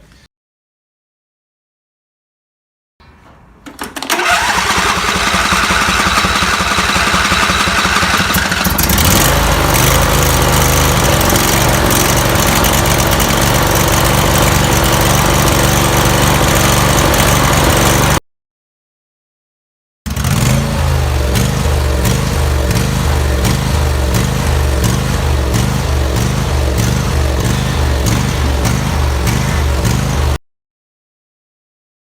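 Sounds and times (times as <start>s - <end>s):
riding mower engine running: 3.7s - 18.2s, 20.1s - 30.4s.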